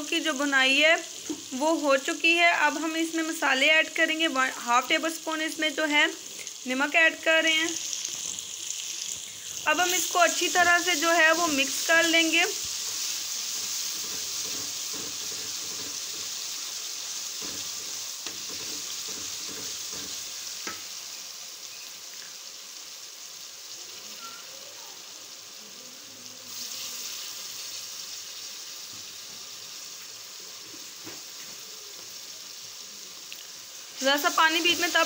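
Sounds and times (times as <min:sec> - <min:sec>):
sauce sizzling in hot oil: 0:00.0 - 0:35.0
wooden spoon stirring and knocking: 0:13.6 - 0:16.4, 0:17.4 - 0:20.8.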